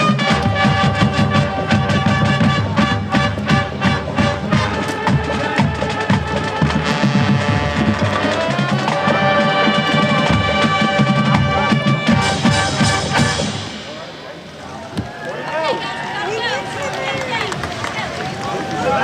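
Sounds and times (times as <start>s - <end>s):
snare and bass drum beat: 0.0s - 14.1s
sustained brass chords: 0.0s - 14.6s.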